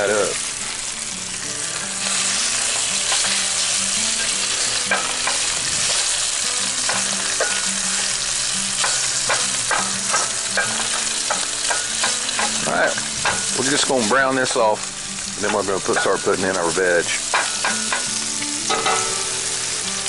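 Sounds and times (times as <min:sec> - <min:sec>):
bacon and sausage sizzling in a skillet: 0:00.0 - 0:20.0
spatula clicking and scraping a pan: 0:01.8 - 0:13.6, 0:17.2 - 0:19.3.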